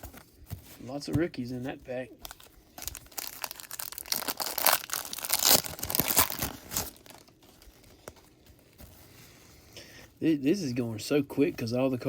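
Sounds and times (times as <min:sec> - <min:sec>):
foil wrapper tearing and crinkling: 0:02.2 - 0:08.2.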